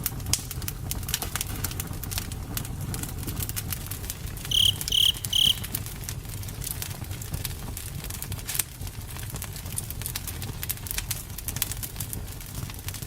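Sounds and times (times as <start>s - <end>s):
campfire crackling: 0.0s - 13.0s
cricket chirps: 4.5s - 5.8s.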